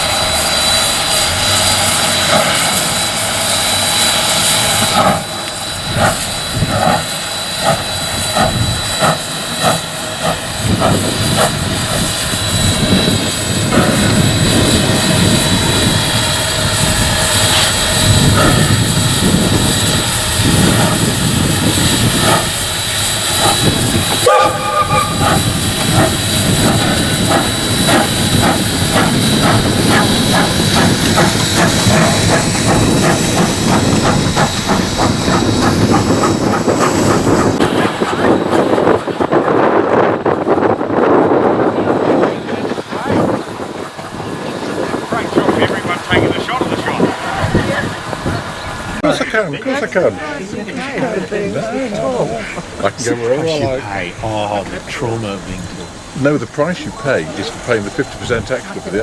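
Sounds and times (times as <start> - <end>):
steam locomotive exhaust beats: 0.0 - 53.0, 53.8 - 59.0
steam and running gear roar: 0.0 - 59.0.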